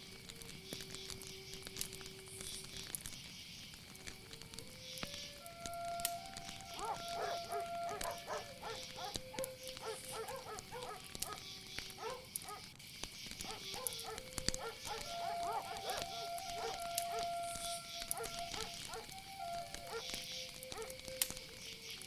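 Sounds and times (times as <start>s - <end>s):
soft music of long held notes: 0.0s - 12.3s, 13.2s - 22.0s
high insect chorus: 0.0s - 22.0s.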